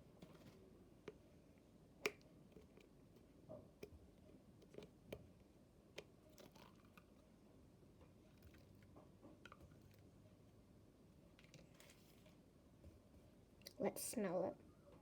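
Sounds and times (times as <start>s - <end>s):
slime soft squishes: 0.1s - 7.4s.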